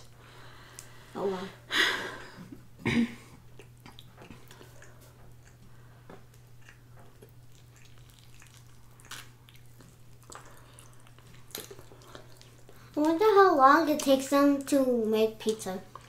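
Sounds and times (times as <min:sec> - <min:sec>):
biting and chewing: 0:03.4 - 0:13.0.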